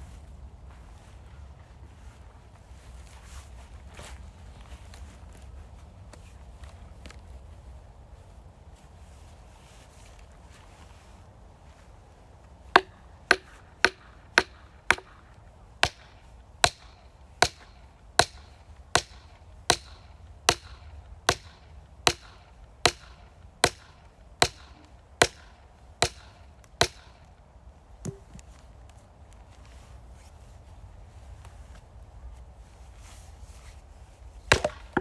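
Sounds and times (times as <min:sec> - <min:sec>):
axe chopping firewood: 0:12.8 - 0:27.1, 0:28.0 - 0:28.5, 0:34.5 - 0:35.0.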